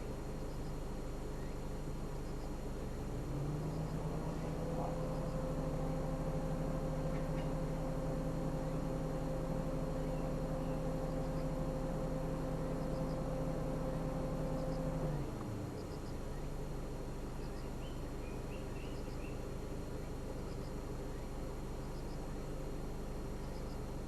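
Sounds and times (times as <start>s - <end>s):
car engine running: 0.0s - 24.0s
faint high chirps: 3.6s - 16.6s, 17.4s - 19.4s, 23.3s - 24.0s.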